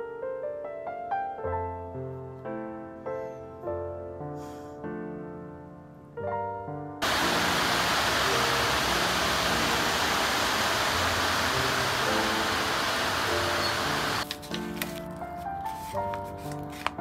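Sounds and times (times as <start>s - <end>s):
soft piano music: 0.0s - 17.0s
hiss of falling water: 7.0s - 14.2s.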